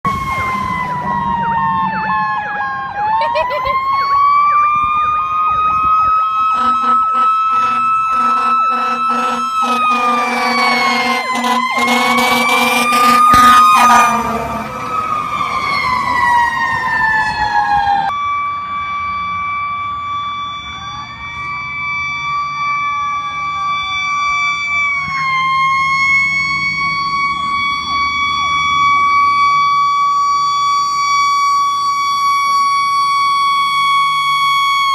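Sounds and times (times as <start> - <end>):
faint second siren: 0.0 - 34.9
fire truck sirens wailing: 0.0 - 34.9
low horn blasts: 6.4 - 15.4.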